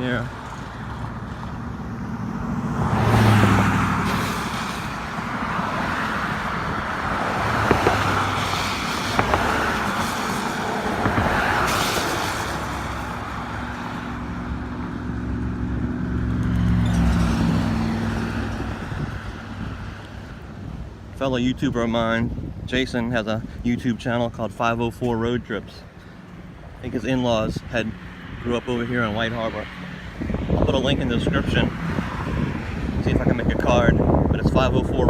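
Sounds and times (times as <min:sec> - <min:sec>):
cars passing by: 0:00.0 - 0:35.0.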